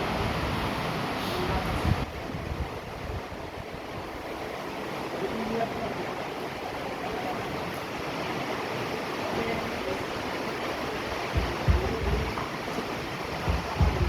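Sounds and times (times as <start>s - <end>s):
steady rain falling: 0.0s - 14.0s
low thumps: 11.3s - 12.6s, 13.4s - 14.0s.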